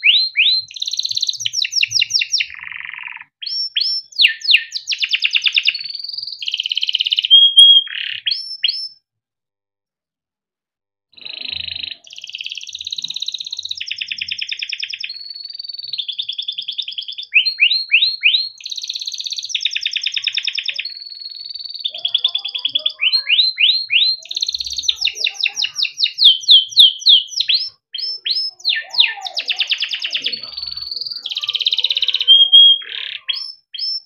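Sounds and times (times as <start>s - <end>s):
canary singing trills: 0.0s - 9.0s, 11.2s - 34.0s.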